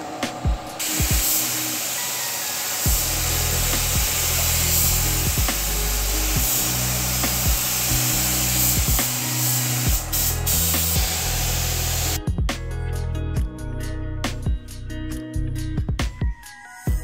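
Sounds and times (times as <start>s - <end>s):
background music with bass and beat: 0.0s - 1.8s, 2.8s - 17.0s
spray gun hissing: 0.1s - 12.2s.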